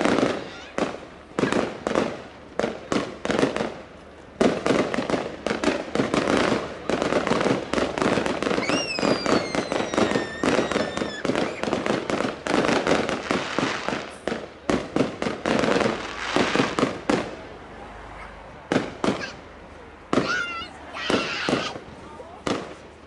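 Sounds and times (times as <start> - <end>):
whistling firework: 0.0 - 1.9, 5.1 - 14.4, 20.1 - 21.9
fireworks banging: 0.0 - 23.0.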